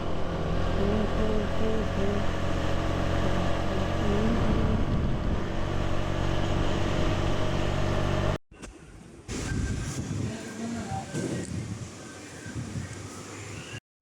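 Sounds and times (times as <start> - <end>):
motorcycle engine running: 0.0 - 8.4
road noise: 0.0 - 13.8
wind noise: 3.3 - 7.4, 9.2 - 13.8.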